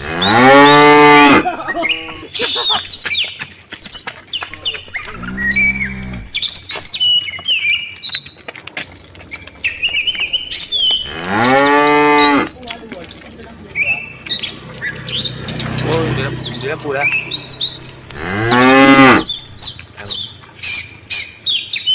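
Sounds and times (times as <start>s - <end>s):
cattle mooing: 0.0s - 2.2s, 4.5s - 6.5s, 10.0s - 12.6s, 17.3s - 19.6s
birds chirping: 0.0s - 3.3s, 4.3s - 8.1s, 8.9s - 21.9s.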